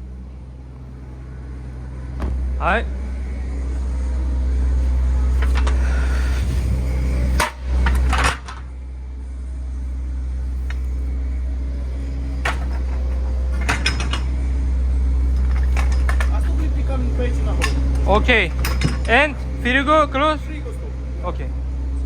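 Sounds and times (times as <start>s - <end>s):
truck engine rumbling: 0.0s - 22.0s
metallic clanks and knocks: 2.1s - 2.6s, 4.8s - 8.7s, 10.4s - 14.4s, 15.2s - 19.9s.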